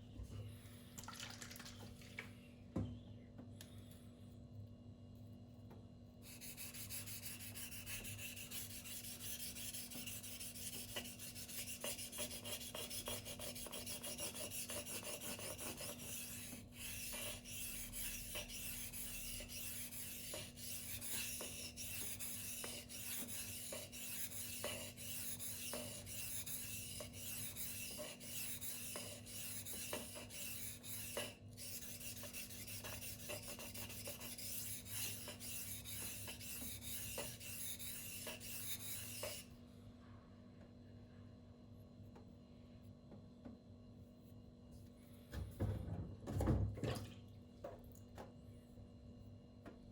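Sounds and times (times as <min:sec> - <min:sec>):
knife scraping on whetstone: 0:06.4 - 0:39.4.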